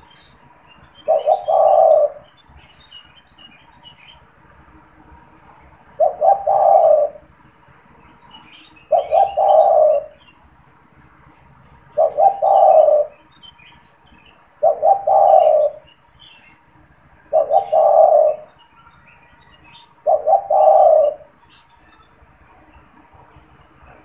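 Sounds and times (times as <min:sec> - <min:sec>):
dove cooing: 0:01.0 - 0:02.3, 0:05.9 - 0:07.3, 0:08.8 - 0:10.2, 0:11.9 - 0:13.2, 0:14.6 - 0:16.6, 0:17.2 - 0:18.6, 0:19.6 - 0:21.4.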